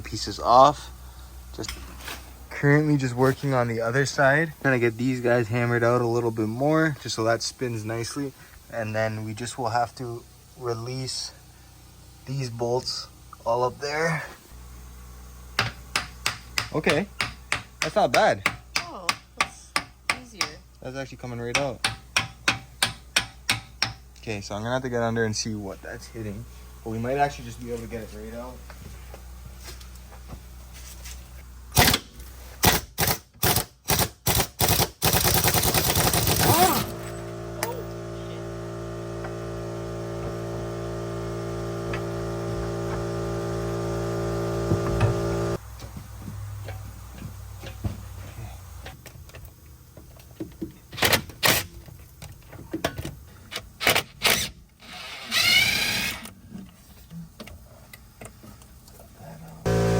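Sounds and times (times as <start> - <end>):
impact wrench rattling: 32.7 - 38.2.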